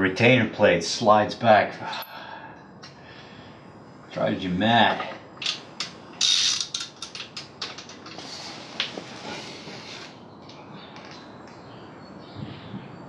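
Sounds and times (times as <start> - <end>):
ratchet wrench clicking: 6.2 - 7.2.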